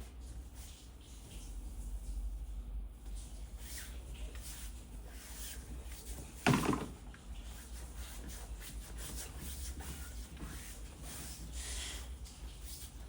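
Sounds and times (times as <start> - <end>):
louder knock: 6.5 - 7.0.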